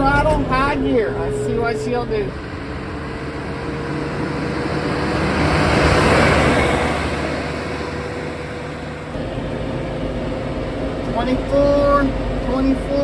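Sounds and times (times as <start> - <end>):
broad rushing noise: 0.0 - 13.0
tractor diesel engine droning: 0.0 - 13.0.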